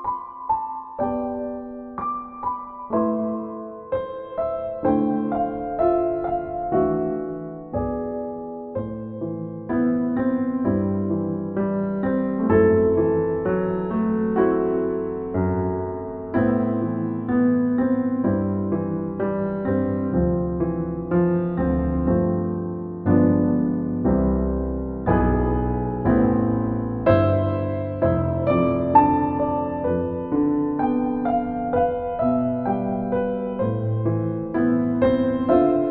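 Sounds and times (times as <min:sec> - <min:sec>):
slow solo piano: 0:00.0 - 0:35.9.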